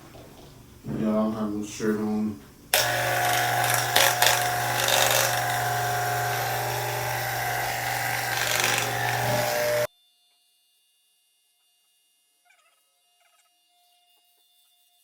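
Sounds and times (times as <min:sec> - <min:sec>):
electric hair clippers buzzing: 0:02.7 - 0:09.9.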